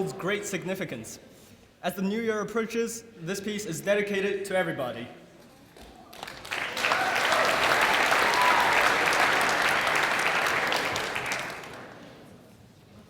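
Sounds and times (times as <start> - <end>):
audience applauding: 6.1 - 12.3.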